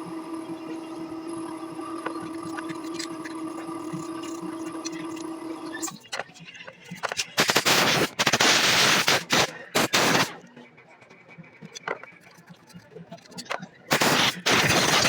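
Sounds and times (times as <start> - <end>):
machine hum with whine: 0.0 - 6.0, 13.9 - 15.0
hissing blasts from nozzle: 7.4 - 10.4.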